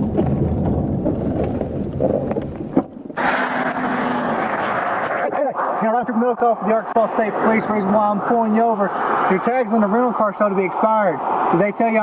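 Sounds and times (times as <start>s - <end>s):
road and wind rumble: 0.0s - 12.0s.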